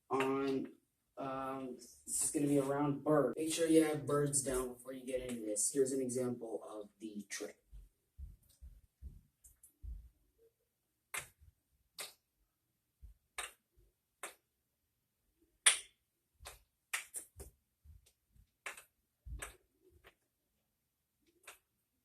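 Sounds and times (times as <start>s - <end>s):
wooden ball clicking against cups: 12.0s - 12.2s, 13.3s - 13.6s, 14.2s - 14.4s, 15.6s - 17.6s, 18.6s - 20.2s.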